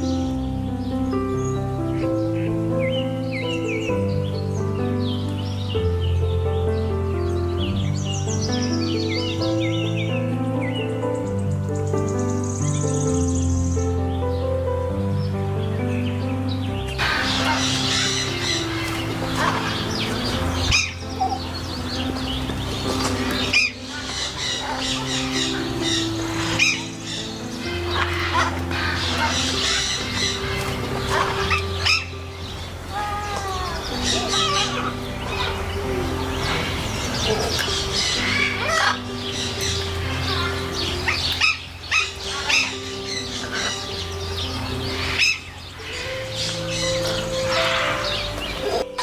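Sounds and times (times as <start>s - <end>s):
music of long held notes: 0.0s - 49.0s
bird chirps and calls: 15.2s - 49.0s.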